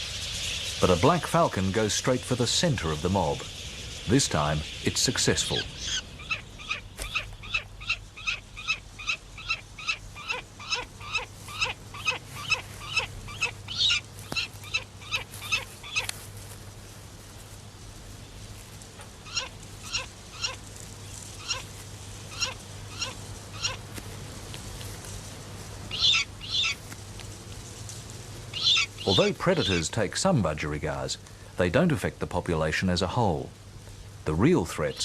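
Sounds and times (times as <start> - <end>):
bird calling in harsh notes: 0.0 - 16.3, 19.0 - 20.7, 21.4 - 23.9, 25.9 - 26.8, 28.5 - 30.0.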